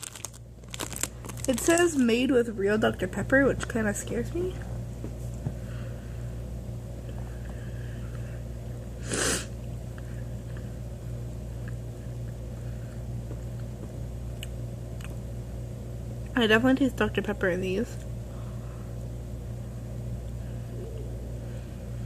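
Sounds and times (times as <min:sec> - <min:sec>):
steady low hum: 0:00.0 - 0:22.0
puff of air: 0:09.0 - 0:09.6
person chewing licorice: 0:11.6 - 0:15.2.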